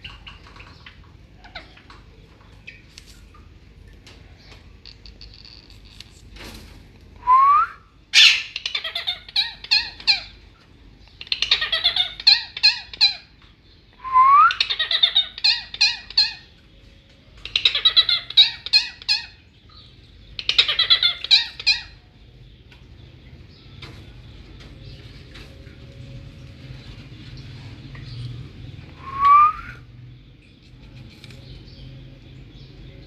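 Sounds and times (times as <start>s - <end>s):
parrot rising whistle: 7.2s - 8.4s, 14.0s - 14.6s, 29.0s - 29.9s
parrots squawking: 8.1s - 10.4s, 11.2s - 13.3s, 14.1s - 16.6s, 17.4s - 19.4s, 20.4s - 22.1s.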